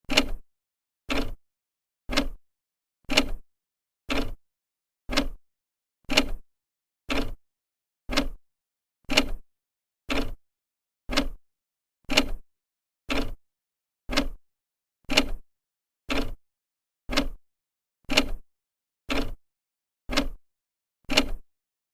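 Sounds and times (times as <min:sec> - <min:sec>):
clock ticking: 0:01.1 - 0:01.4, 0:02.1 - 0:02.4, 0:04.1 - 0:04.4, 0:05.1 - 0:05.4, 0:07.1 - 0:07.4, 0:08.1 - 0:08.4, 0:10.1 - 0:10.4, 0:11.1 - 0:11.4, 0:13.1 - 0:13.4, 0:14.1 - 0:14.4, 0:17.1 - 0:17.4, 0:19.1 - 0:19.4, 0:20.1 - 0:20.4.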